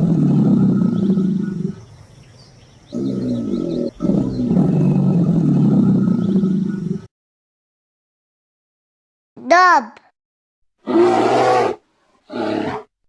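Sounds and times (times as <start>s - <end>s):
crocodile growling: 0.0s - 2.1s, 2.9s - 7.1s.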